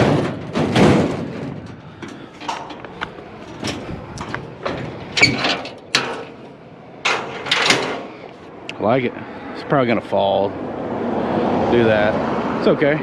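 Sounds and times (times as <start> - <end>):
scrap metal knocking and clattering: 0.0 - 8.5.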